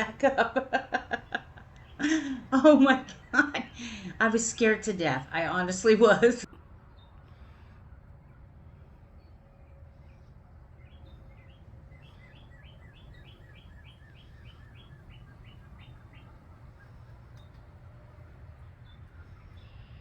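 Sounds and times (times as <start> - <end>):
faint low rumble: 0.0 - 20.0
small bird chirping: 10.0 - 20.0.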